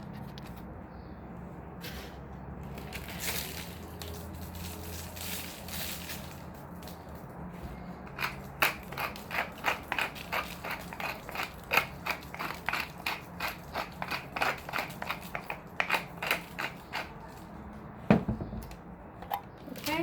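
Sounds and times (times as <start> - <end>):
spice grinder grinding: 8.1 - 17.4.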